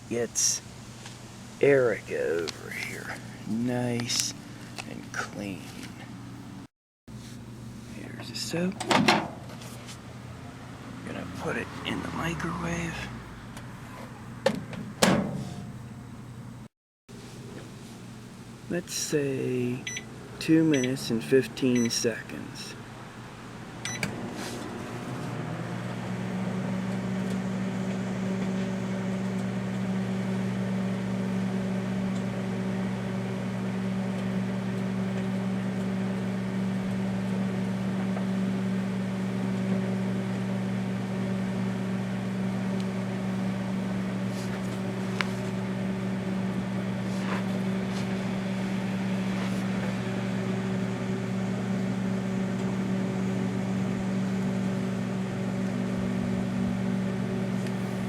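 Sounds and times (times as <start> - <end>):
microwave oven humming: 0.0 - 58.0.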